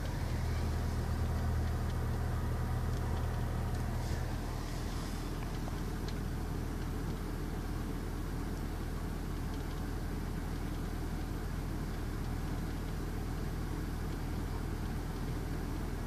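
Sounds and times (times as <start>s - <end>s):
motor vehicle rumble: 0.0s - 7.5s.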